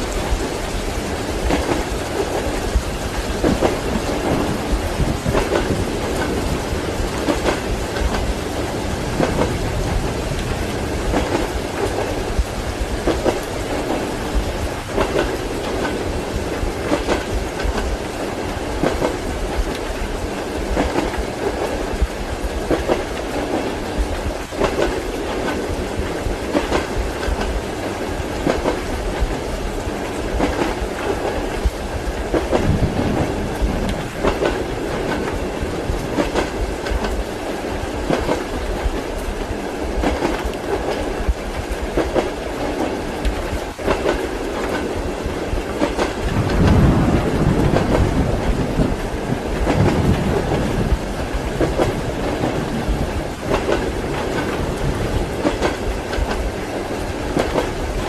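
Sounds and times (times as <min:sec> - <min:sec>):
train rumble: 0:00.0 - 0:58.0
wheels clickety-clack on rail joints: 0:00.0 - 0:58.0.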